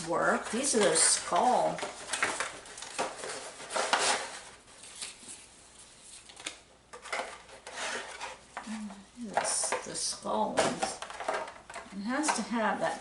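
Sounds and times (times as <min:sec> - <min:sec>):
packaging rustling: 0:00.0 - 0:09.8.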